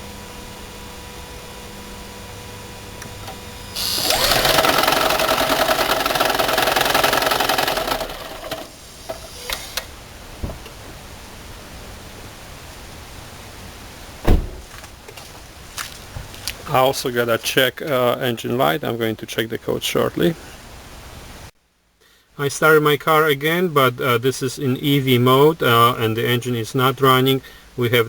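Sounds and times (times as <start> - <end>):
car engine starting with knocking: 3.0 - 9.8
thump: 10.4 - 10.8, 14.2 - 14.8.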